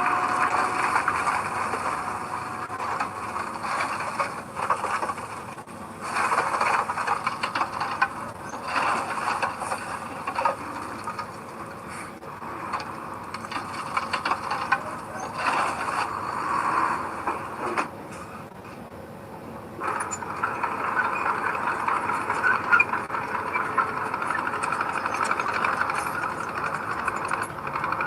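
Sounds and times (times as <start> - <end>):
earthmoving machinery rattling and clanking: 0.0 - 16.5, 19.8 - 28.0.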